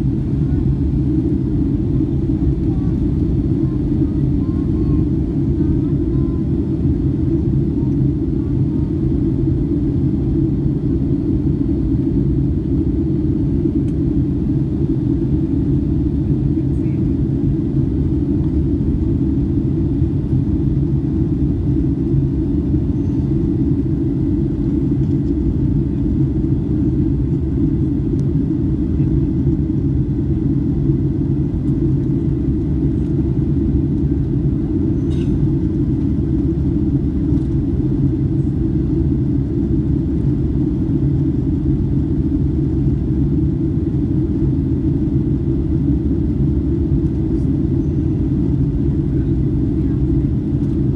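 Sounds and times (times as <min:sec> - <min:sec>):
airplane engines roaring: 0:00.0 - 0:50.9.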